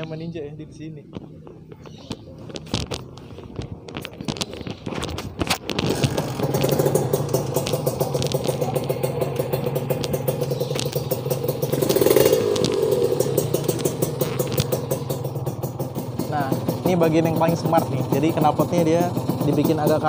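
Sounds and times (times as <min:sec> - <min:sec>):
motorcycle kick-start: 0:04.1 - 0:20.0
two-stroke engine idling: 0:05.8 - 0:20.0.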